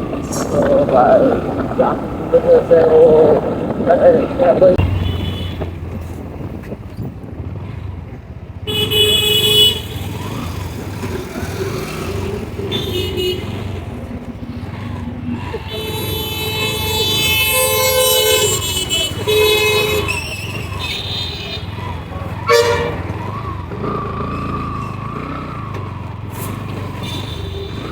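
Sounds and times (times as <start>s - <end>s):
low rumble of traffic: 0.0s - 27.9s
vehicle horns honking: 0.2s - 5.9s, 8.7s - 10.4s, 11.8s - 14.0s, 15.4s - 23.4s, 26.5s - 27.9s.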